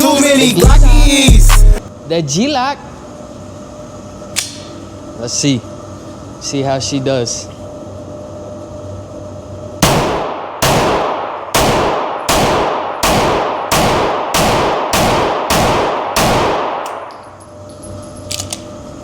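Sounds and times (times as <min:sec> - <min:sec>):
pistol shots with echo: 0:09.8 - 0:17.1.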